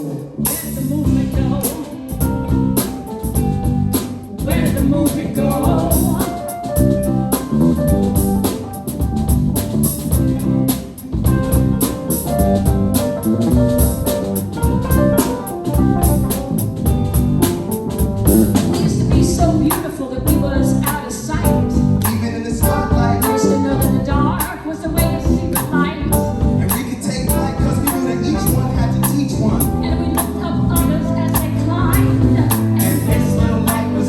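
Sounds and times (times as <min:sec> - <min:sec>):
person singing: 0:00.0 - 0:02.5, 0:04.4 - 0:06.8, 0:18.6 - 0:34.0
drums: 0:00.0 - 0:34.0
guitar: 0:00.0 - 0:34.0
live band playing: 0:00.0 - 0:34.0.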